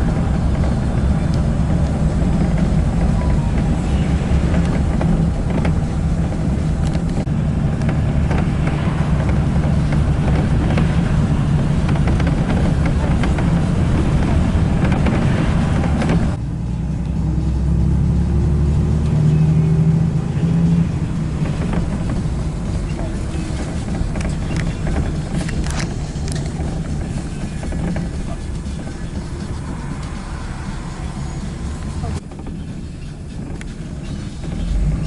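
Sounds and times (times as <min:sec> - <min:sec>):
car engine and road rumble: 0:00.0 - 0:35.0.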